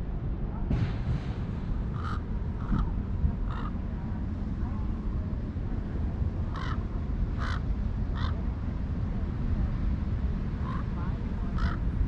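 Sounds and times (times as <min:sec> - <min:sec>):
crow cawing: 0:02.0 - 0:02.9, 0:03.5 - 0:03.8, 0:06.5 - 0:06.8, 0:07.4 - 0:07.6, 0:08.2 - 0:08.4, 0:11.6 - 0:11.8.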